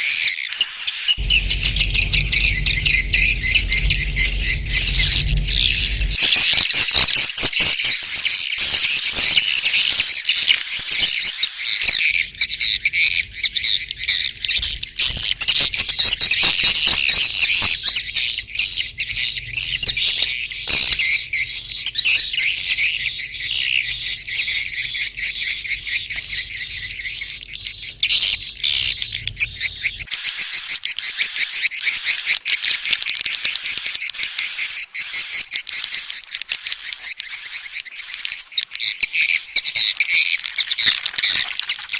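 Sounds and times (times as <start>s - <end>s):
swiftlets chittering: 1.2s - 6.4s
low hum: 1.2s - 6.6s, 12.2s - 30.1s.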